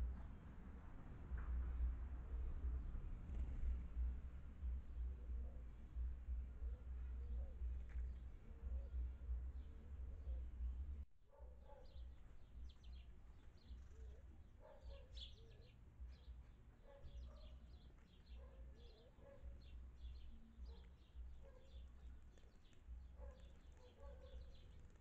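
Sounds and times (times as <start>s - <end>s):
low hum: 0.0s - 11.1s
small birds chirping: 3.3s - 25.0s.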